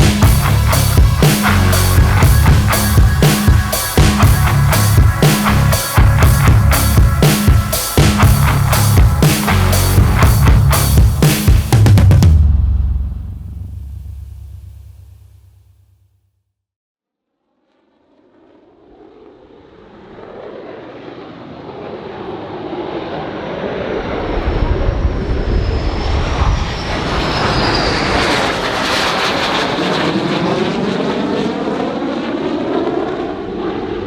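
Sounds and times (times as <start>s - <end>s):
jet aircraft flying past: 17.9s - 34.0s.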